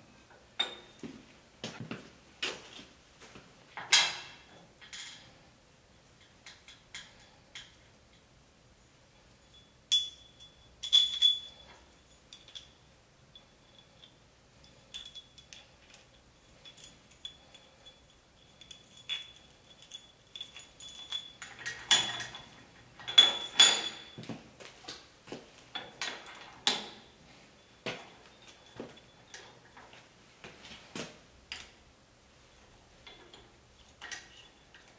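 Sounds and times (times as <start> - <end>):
steel parts clinking and scraping: 3.8 - 5.5, 6.2 - 8.2, 9.4 - 24.2, 25.7 - 30.0, 32.5 - 34.9.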